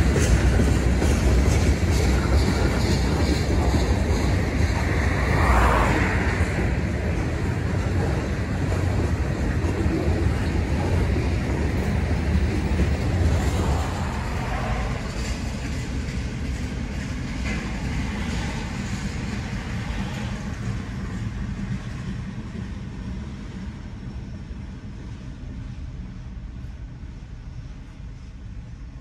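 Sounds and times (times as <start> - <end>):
freight cars rumbling past: 0.0 - 23.2.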